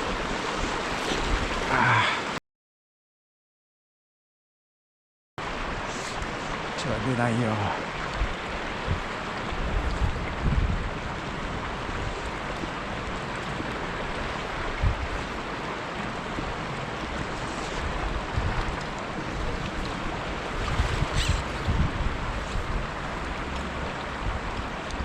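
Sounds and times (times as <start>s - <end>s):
stream water flowing: 0.0s - 2.4s, 5.4s - 25.0s
wind buffeting microphone: 8.0s - 24.7s.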